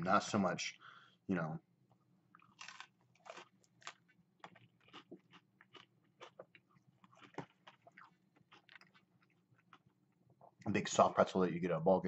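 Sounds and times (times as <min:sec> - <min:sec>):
crispy food crunching: 0:02.3 - 0:10.2.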